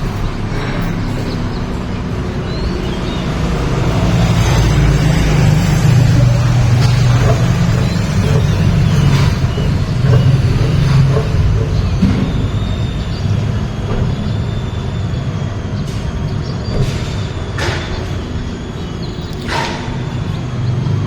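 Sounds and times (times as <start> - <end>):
humming engine: 0.0 - 21.0
traffic rumble: 0.0 - 21.0.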